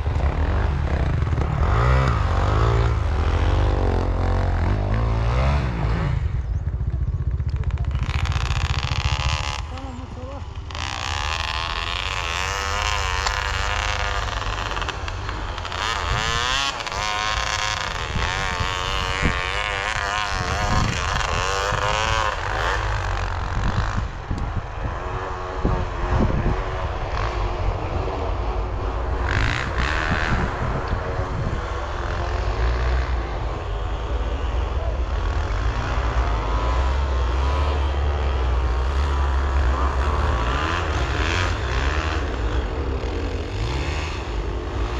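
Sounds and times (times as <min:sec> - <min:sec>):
heavy low rumble: 0:00.0 - 0:22.5
dirt bike engines revving: 0:00.0 - 0:44.9.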